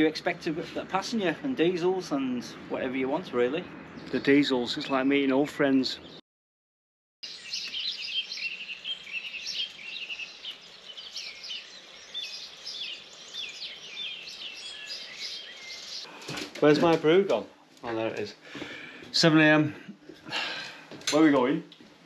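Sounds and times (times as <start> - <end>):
birds singing: 0.0 - 6.2, 7.2 - 16.8.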